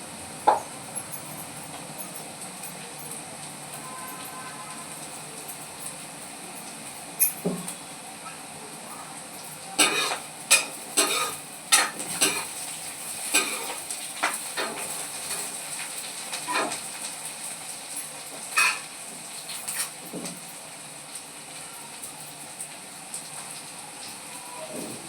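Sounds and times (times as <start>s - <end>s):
food sizzling in pan: 0.0s - 25.0s
metal spatula scraping pan: 9.8s - 12.5s.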